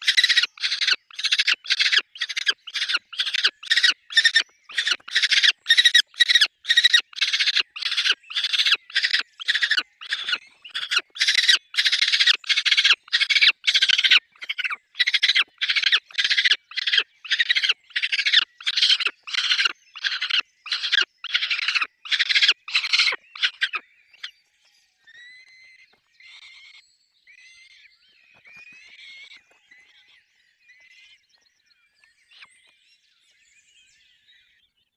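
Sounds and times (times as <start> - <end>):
falcon harsh calls: 0.0 - 23.8.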